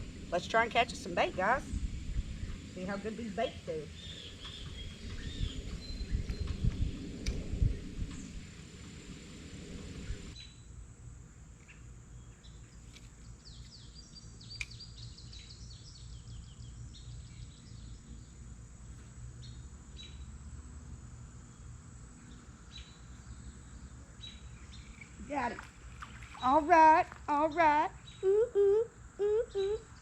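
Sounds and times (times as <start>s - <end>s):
small birds chirping: 0.0s - 7.1s, 11.5s - 20.4s, 21.4s - 30.0s
steady low rumble: 0.0s - 12.6s.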